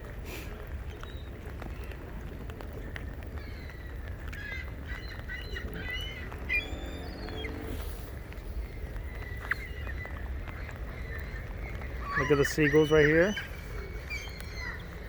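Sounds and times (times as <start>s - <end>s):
steady low rumble: 0.7s - 12.1s
seagulls squawking: 3.4s - 15.0s.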